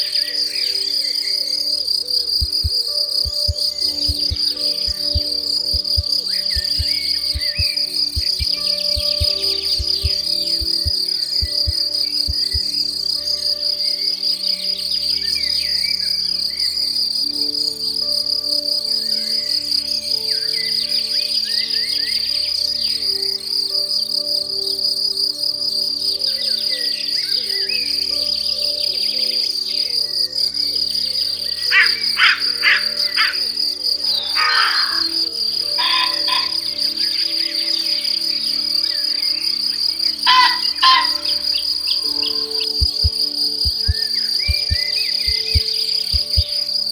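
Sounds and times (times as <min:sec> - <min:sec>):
crickets trilling: 0:00.0 - 0:46.9
soft background music: 0:00.0 - 0:46.9
short insect chirps: 0:01.9 - 0:12.9, 0:38.4 - 0:46.9
sustained low tones: 0:02.4 - 0:12.6, 0:42.8 - 0:46.5.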